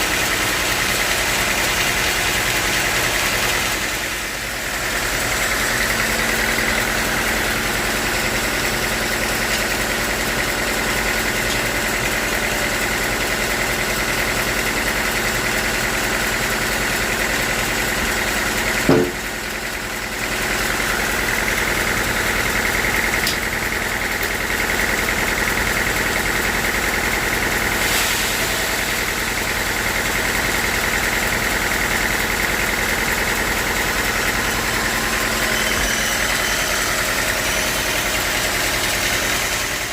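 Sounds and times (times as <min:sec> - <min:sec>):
sawmill machinery droning: 0:00.0 - 0:39.9
sharp knock: 0:18.9 - 0:19.2.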